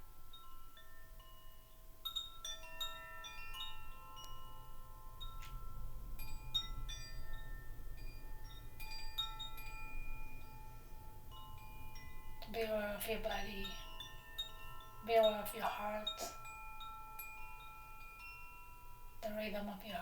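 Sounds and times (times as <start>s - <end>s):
wind chimes tinkling: 0.0s - 20.0s.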